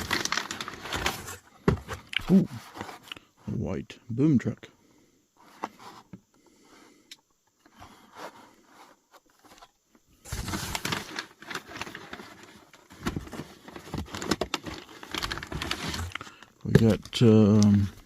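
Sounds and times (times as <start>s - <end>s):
packaging rustling and crinkling: 0.0s - 3.2s, 9.1s - 18.0s.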